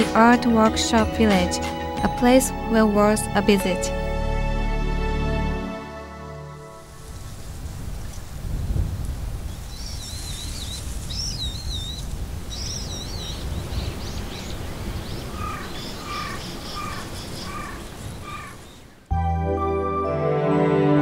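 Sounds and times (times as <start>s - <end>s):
birds calling: 9.5s - 19.1s.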